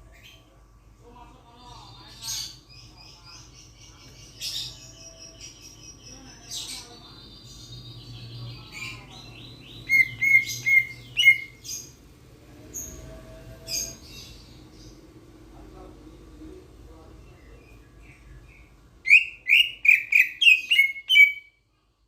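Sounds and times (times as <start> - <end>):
starling high chirps and whistles: 9.8 - 11.6, 19.1 - 21.6.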